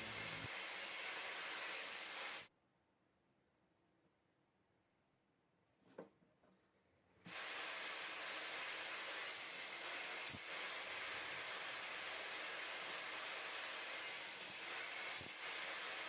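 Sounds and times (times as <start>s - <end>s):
steady hiss: 0.0s - 2.5s.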